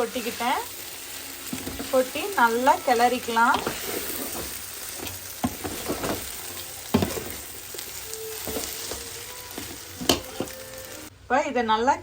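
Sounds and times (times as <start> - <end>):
food sizzling in a pan: 0.0 - 11.1
stirring scrapes and knocks: 3.4 - 7.8, 8.4 - 10.6.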